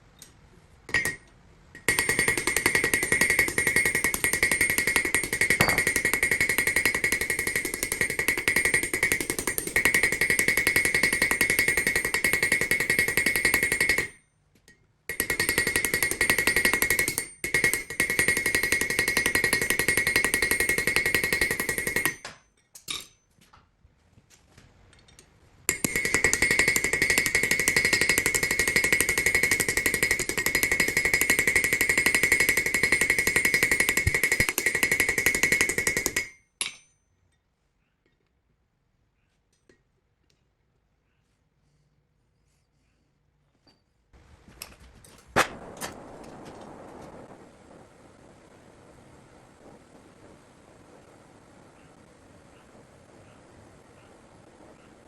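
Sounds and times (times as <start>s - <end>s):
power hammer pounding: 1.9s - 14.2s, 15.1s - 22.3s, 25.7s - 36.3s.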